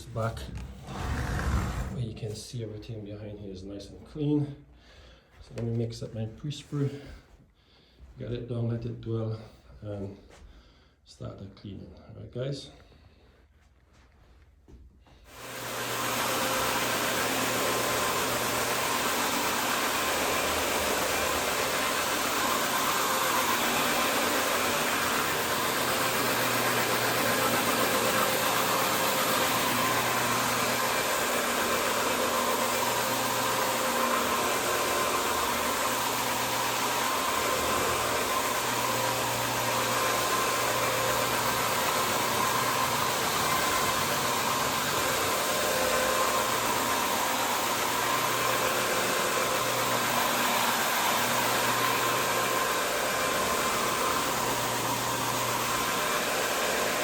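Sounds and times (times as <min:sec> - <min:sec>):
cleaning machine motor whir and hiss: 0:00.0 - 0:02.2, 0:15.3 - 0:57.0
low hum cutting in and out: 0:00.0 - 0:02.5.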